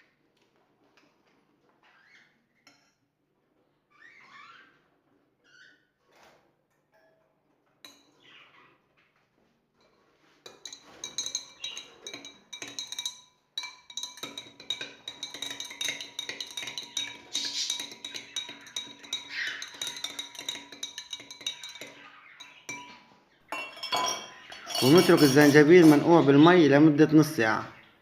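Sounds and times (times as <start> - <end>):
teaspoon clinking against glass: 10.5 - 26.2
faint scrapes: 24.6 - 26.2.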